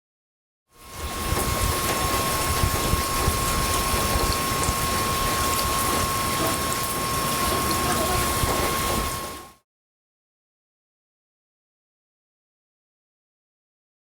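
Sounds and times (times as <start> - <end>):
heavy rain falling: 0.8 - 9.6
wind gusts on microphone: 0.9 - 6.2.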